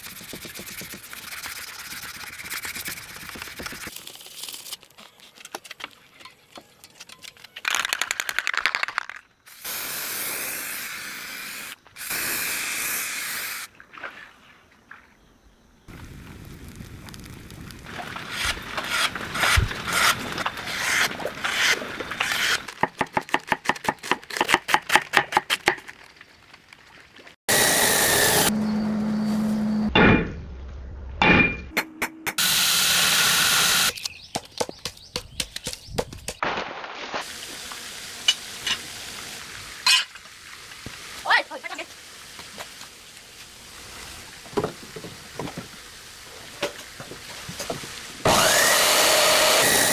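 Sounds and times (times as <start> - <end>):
hissing noise bursts: 9.5 - 13.7.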